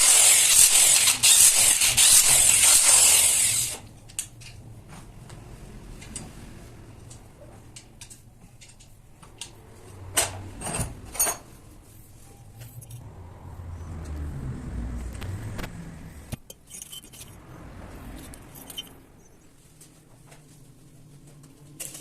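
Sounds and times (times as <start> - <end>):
low rumble: 13.0 - 16.4
metal tools clinking: 16.5 - 17.4, 18.2 - 19.3.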